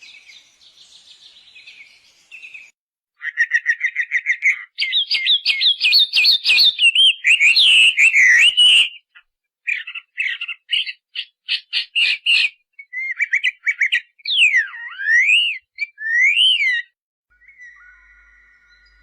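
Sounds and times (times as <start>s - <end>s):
bird chirping: 0.0s - 19.0s
bird whistling sliding notes: 17.3s - 19.0s.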